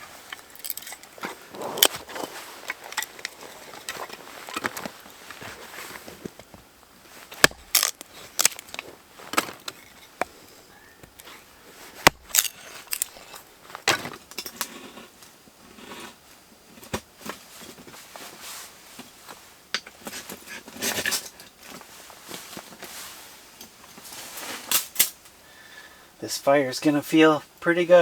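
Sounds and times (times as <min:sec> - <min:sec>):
firewood knocking and scraping: 0:00.1 - 0:15.2.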